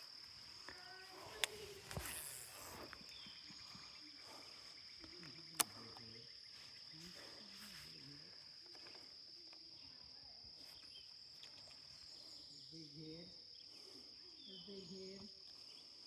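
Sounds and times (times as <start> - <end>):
insects droning: 0.0 - 16.0
sharp click: 5.5 - 5.8.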